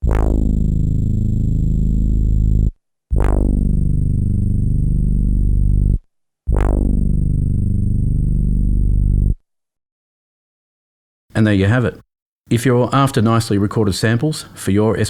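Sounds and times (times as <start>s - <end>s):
synthesizer bass notes: 0.0s - 9.4s.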